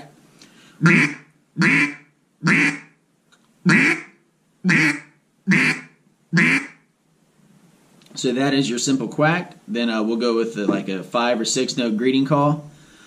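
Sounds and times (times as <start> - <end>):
duck call quacks: 0.8 - 3.0, 3.6 - 6.8.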